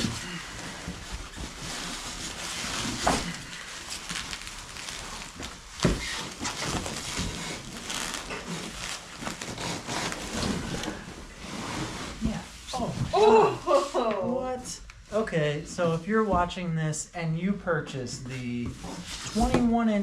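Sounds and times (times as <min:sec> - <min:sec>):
rustling and crinkling packing: 0:00.0 - 0:14.0, 0:18.3 - 0:20.0.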